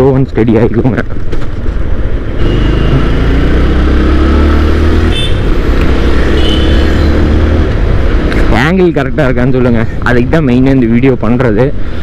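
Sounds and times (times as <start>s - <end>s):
motorcycle engine accelerating: 2.2s - 8.5s.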